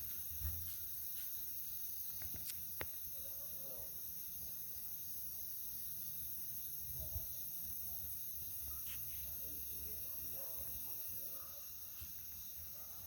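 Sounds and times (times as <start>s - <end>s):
insects hissing: 0.0s - 13.0s.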